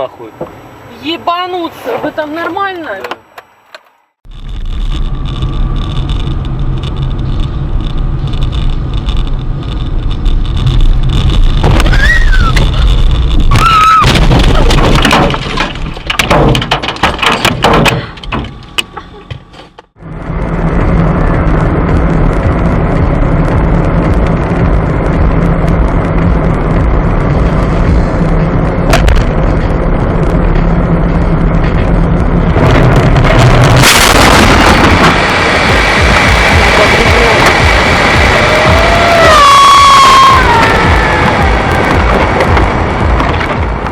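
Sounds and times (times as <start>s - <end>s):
car engine and road noise: 0.0s - 43.9s
collision bangs and crunches: 10.3s - 18.6s, 32.5s - 35.5s.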